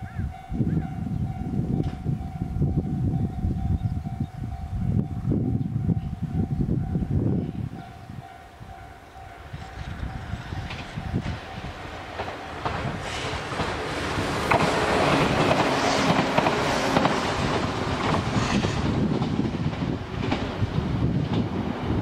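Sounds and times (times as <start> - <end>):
train wheels clicking on track: 9.5 - 22.0.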